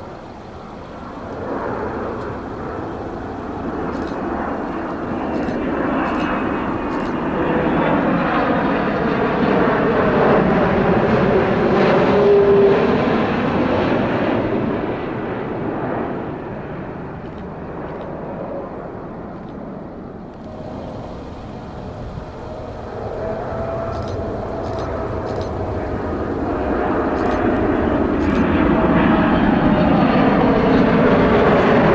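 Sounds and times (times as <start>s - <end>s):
steady engine tone: 0.0s - 13.4s, 20.2s - 31.9s
jet airliner passing: 0.0s - 31.9s.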